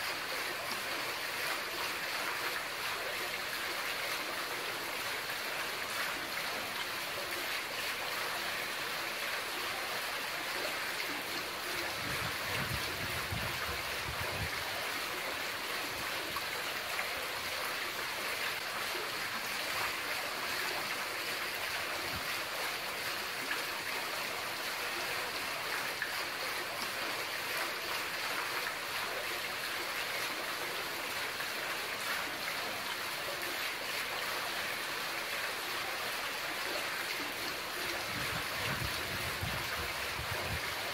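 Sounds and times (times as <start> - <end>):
fountain water splashing into basin: 0.0 - 40.9.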